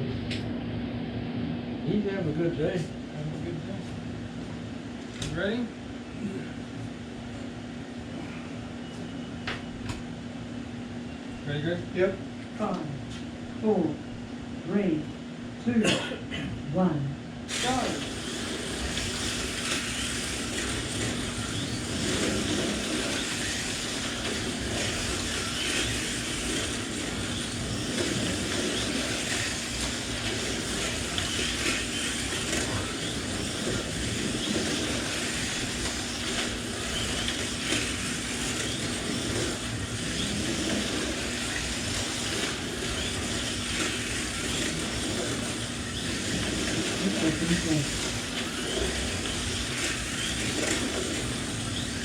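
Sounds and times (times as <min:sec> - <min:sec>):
slot car motors whirring: 0:17.5 - 0:52.0.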